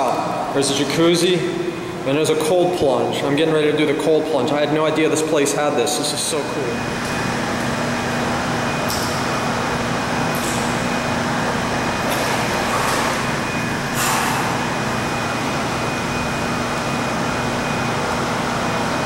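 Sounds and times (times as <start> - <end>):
low hum of pool equipment: 0.0 - 19.0
churning pool water rushing: 10.8 - 15.2.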